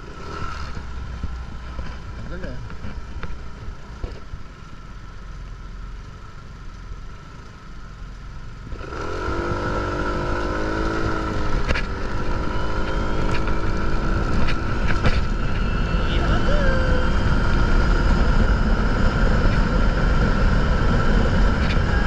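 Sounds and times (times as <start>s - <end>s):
motorcycle engine revving: 0.0s - 4.5s, 8.4s - 22.0s
wind rumbling on microphone: 8.6s - 22.0s.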